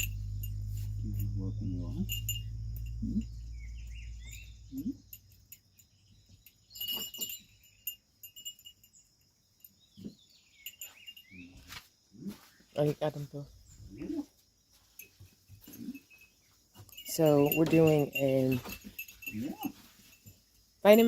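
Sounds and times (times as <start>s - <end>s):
low steady hum: 0.0s - 5.6s
small birds chirping: 0.0s - 21.0s.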